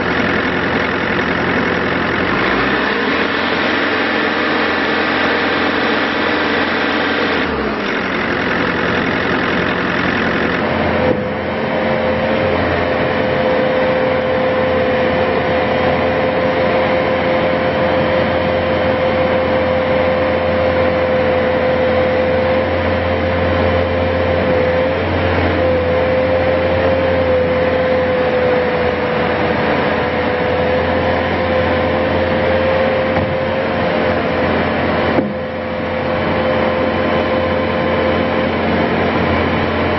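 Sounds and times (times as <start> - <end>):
diesel engine running: 0.0 - 39.9
steady whine: 0.0 - 39.9.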